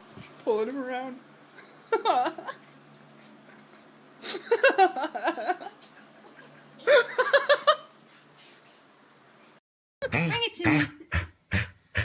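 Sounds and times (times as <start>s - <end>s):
person giggling and laughing: 1.9s - 2.6s, 4.2s - 7.9s.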